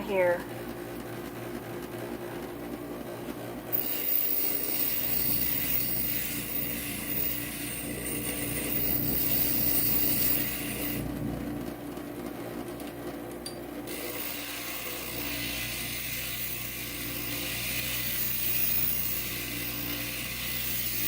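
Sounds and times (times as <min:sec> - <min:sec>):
gritty grinding hiss on glass: 0:03.7 - 0:11.0, 0:13.9 - 0:21.0
glass grinder motor running: 0:03.7 - 0:11.1, 0:13.9 - 0:21.0.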